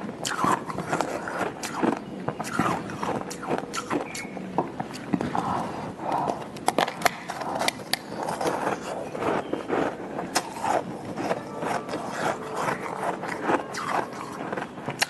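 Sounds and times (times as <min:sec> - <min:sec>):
crunching and chewing ice: 0:00.0 - 0:15.0.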